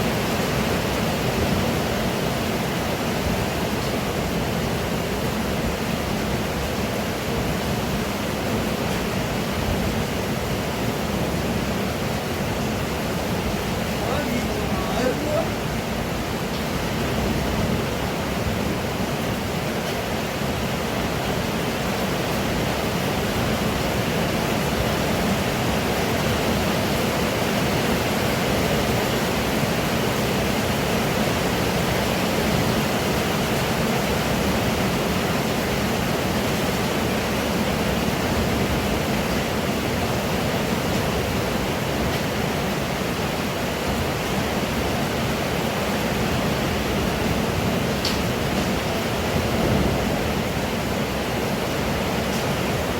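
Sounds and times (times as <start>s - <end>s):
pouring rain: 0.0s - 52.9s.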